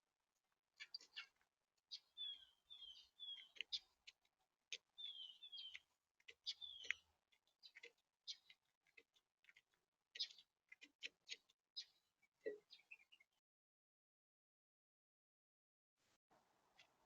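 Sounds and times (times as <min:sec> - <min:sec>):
beaks pecking at seed: 0:00.8 - 0:13.2
birds chirping: 0:00.8 - 0:13.3.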